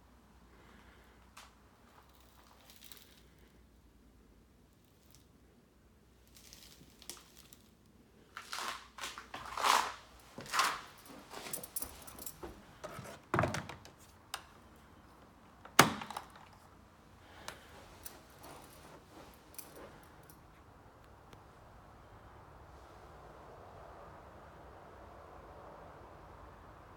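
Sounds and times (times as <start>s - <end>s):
handling rustles: 6.2s - 20.7s.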